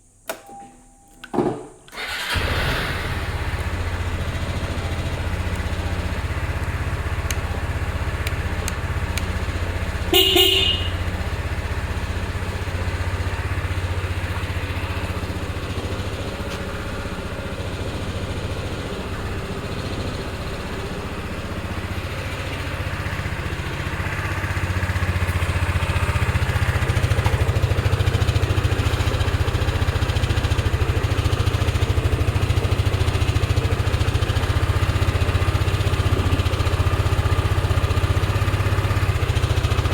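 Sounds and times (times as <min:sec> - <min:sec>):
scooter engine starting and idling: 0:01.3 - 0:39.9
scooter horn: 0:03.5 - 0:22.0, 0:22.9 - 0:29.2.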